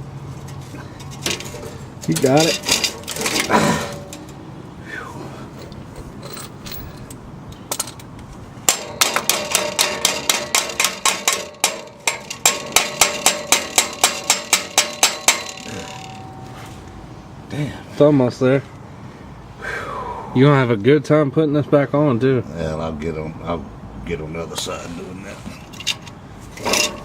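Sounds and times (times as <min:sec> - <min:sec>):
hand tool striking metal: 0:01.0 - 0:04.4, 0:08.7 - 0:17.0.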